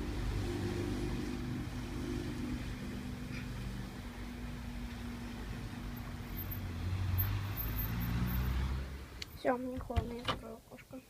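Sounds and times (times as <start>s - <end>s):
street traffic hum: 0.0s - 11.0s.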